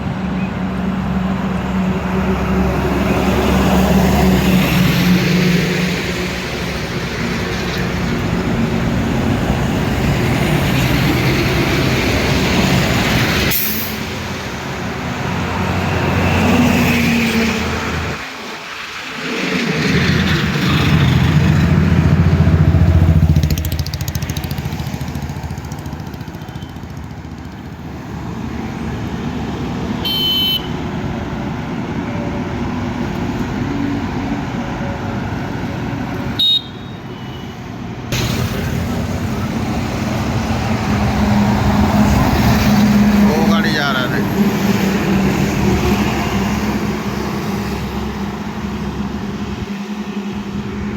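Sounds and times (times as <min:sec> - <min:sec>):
loud vehicle engine: 0:00.0 - 0:30.0, 0:37.8 - 0:50.9
highway traffic passing: 0:00.0 - 0:50.9
short horn toots: 0:30.0 - 0:30.7.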